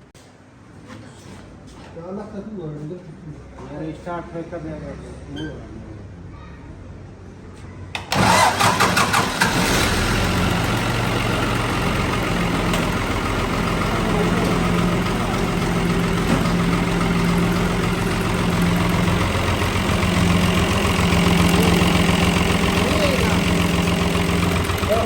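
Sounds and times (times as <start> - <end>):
tractor diesel engine starting: 8.0 - 25.0.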